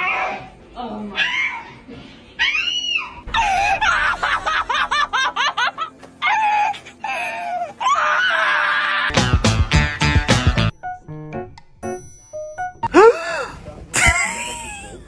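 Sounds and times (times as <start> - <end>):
high-pitched yips or laughs: 14.0 - 15.0.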